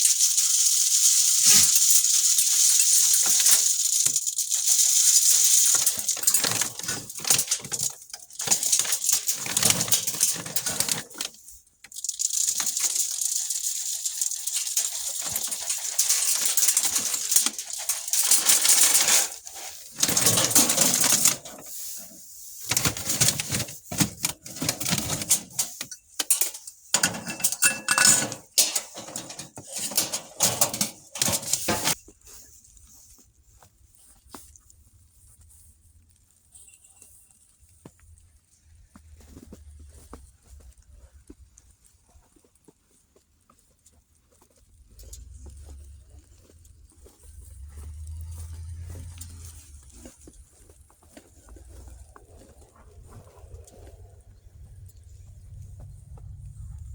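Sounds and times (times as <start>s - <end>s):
small hard objects rattling: 0.0s - 32.4s, 44.4s - 56.9s.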